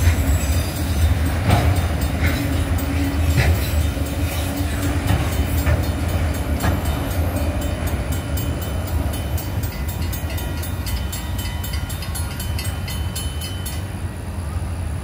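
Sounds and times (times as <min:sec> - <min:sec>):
crossing bell dinging: 0:00.0 - 0:14.4
freight train rumbling: 0:00.0 - 0:15.0.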